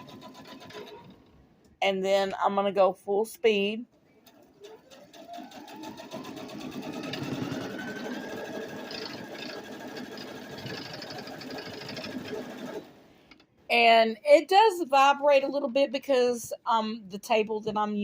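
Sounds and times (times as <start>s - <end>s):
sewing machine stitching: 0.0s - 1.4s, 4.2s - 13.0s.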